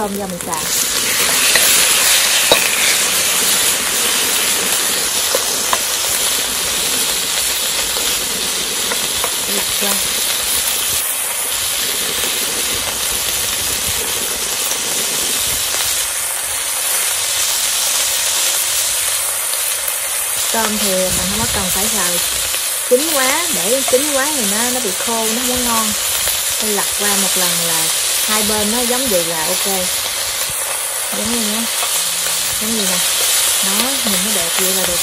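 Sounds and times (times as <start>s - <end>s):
food sizzling in hot oil: 0.0s - 35.0s.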